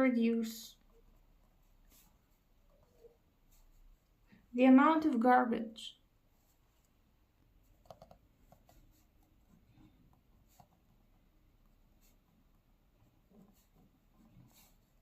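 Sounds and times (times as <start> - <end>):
pen writing on paper: 13.2 - 15.0.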